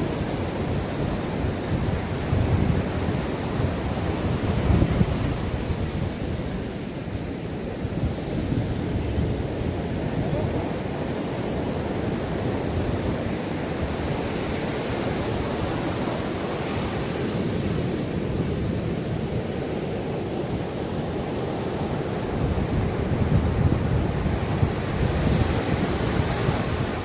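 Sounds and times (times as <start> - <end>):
sea waves breaking on shore: 0.0 - 27.0.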